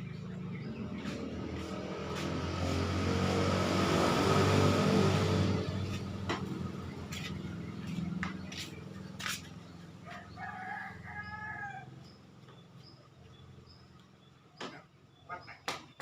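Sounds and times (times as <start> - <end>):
low engine hum: 0.0 - 14.4
rooster crowing: 10.0 - 12.2.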